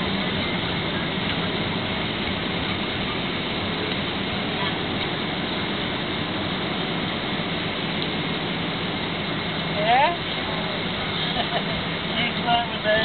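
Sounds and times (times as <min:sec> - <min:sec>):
airliner cabin engine noise: 0:00.0 - 0:13.0.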